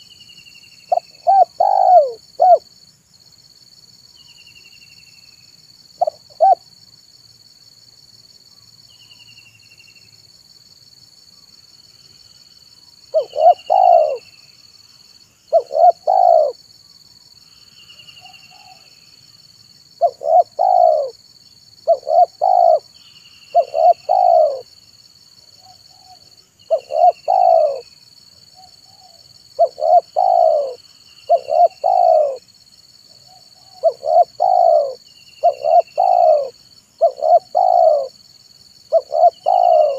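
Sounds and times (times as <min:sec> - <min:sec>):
dove cooing: 0:00.9 - 0:02.6, 0:06.0 - 0:06.6, 0:13.1 - 0:14.3, 0:15.5 - 0:16.6, 0:20.0 - 0:21.2, 0:21.8 - 0:22.9, 0:23.5 - 0:24.7, 0:25.6 - 0:27.9, 0:28.6 - 0:32.4, 0:33.3 - 0:38.2, 0:38.9 - 0:39.9.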